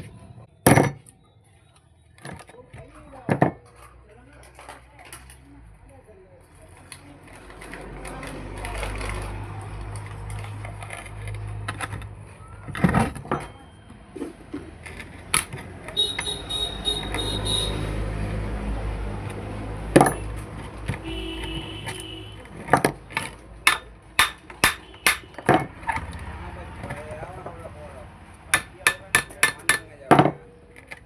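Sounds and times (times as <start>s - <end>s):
hammer blows: 23.7s - 25.5s.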